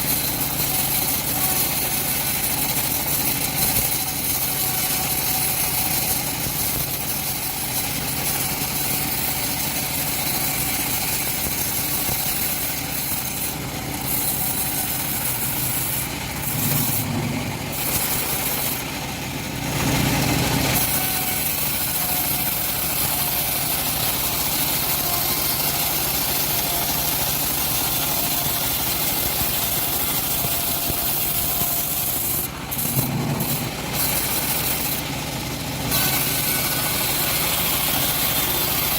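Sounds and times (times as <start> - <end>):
bandsaw mill sawing log: 0.0 - 38.9.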